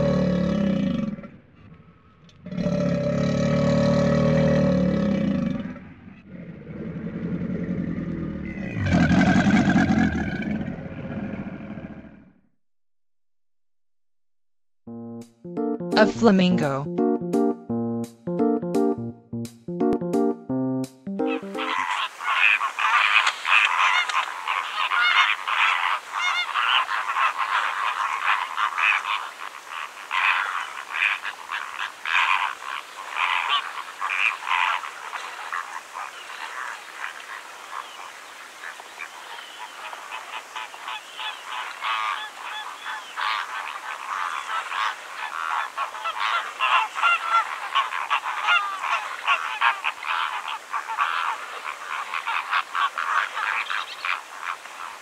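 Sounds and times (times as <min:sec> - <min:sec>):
flamingos calling: 0:21.2 - 0:55.0.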